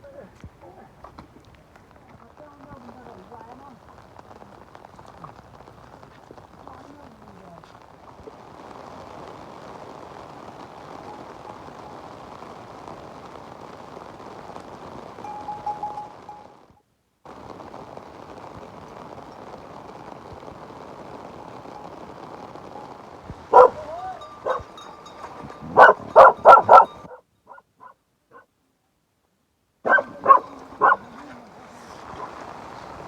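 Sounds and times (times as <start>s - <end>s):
steady rain hiss: 0.0s - 33.0s
dog barking: 23.5s - 24.8s, 25.6s - 28.5s, 29.8s - 31.1s.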